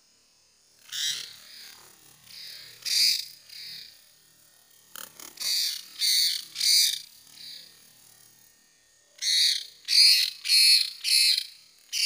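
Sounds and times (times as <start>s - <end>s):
birds giving harsh rasping calls: 0.8s - 1.7s, 2.3s - 4.0s, 5.4s - 7.7s, 9.2s - 12.0s.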